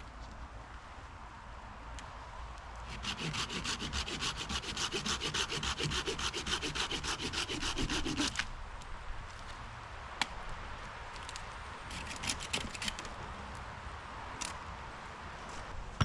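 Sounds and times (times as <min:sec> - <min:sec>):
hand saw cutting wood: 0:02.9 - 0:08.4, 0:11.9 - 0:13.0.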